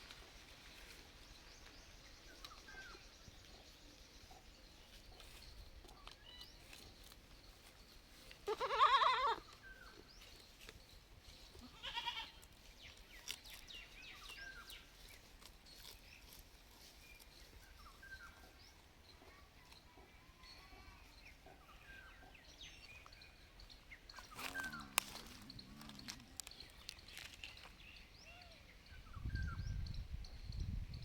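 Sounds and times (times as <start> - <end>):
goat kid bleating: 8.4 - 9.4, 11.6 - 12.4.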